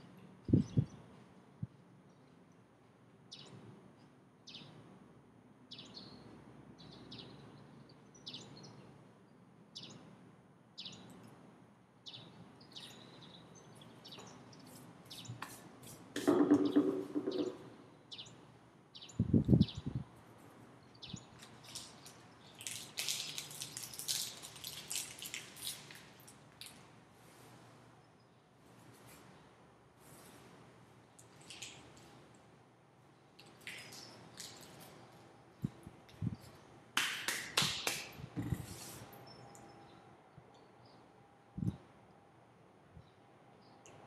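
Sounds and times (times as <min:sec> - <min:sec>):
plastic wrapper crinkling: 0:21.4 - 0:26.8.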